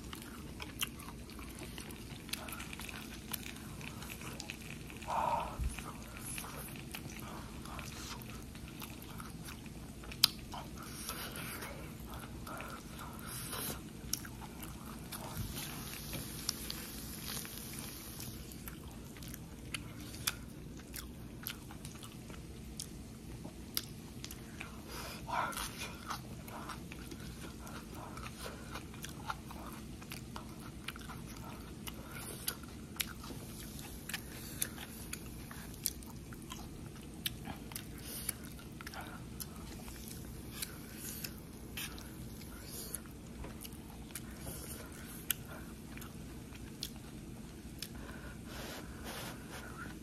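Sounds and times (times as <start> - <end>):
person chewing food: 0.0 - 50.0.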